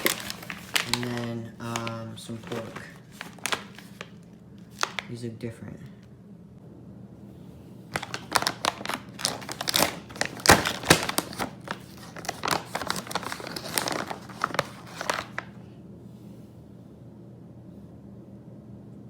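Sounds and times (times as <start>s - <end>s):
plastic packaging crinkling: 0.0s - 5.2s, 7.9s - 15.5s.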